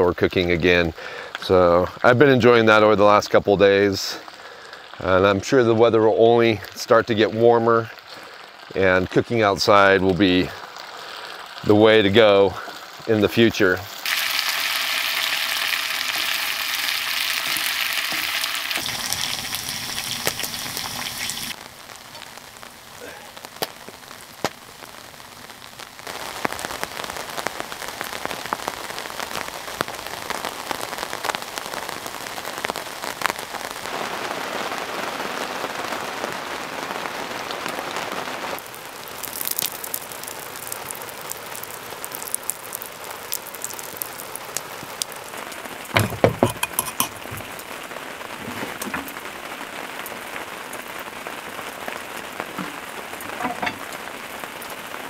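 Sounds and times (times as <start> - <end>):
rain on fabric awning: 0.0 - 55.0
sharp knocks: 46.0 - 47.5.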